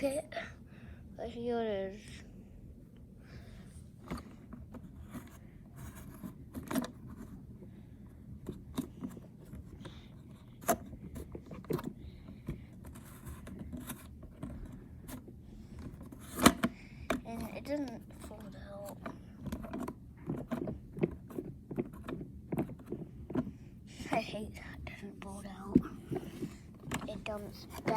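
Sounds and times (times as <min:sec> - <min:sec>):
plastic toy clicks and scrapes: 0:12.8 - 0:23.5.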